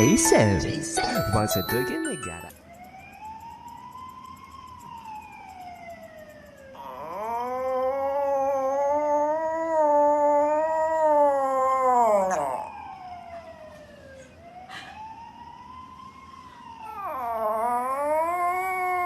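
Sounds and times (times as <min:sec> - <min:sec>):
dog howling: 0:06.8 - 0:13.2, 0:16.9 - 0:19.0.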